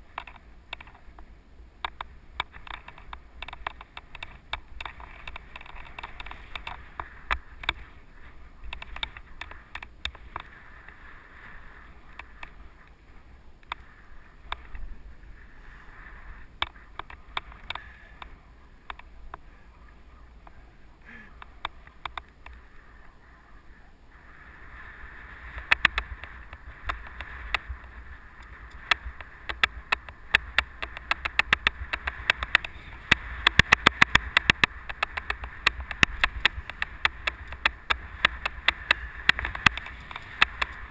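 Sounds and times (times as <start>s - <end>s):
bike rattling and clicking: 0.0s - 12.8s, 16.2s - 19.4s, 24.7s - 40.9s
wind rumble on microphone: 0.0s - 40.9s
bike tyres rushing on dirt: 2.0s - 40.9s.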